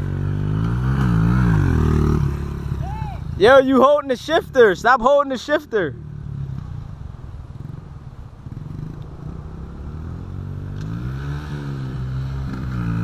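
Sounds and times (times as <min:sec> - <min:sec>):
dirt bike engine idling and revving: 0:00.0 - 0:13.0.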